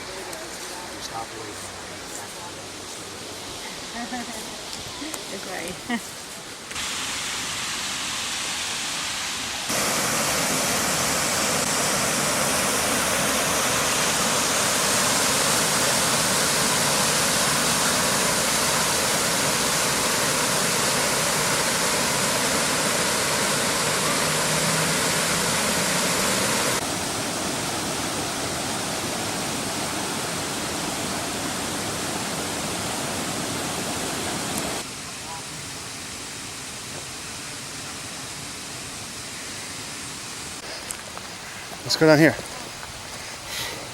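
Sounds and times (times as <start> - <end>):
waterfall rushing: 6.7 - 40.8.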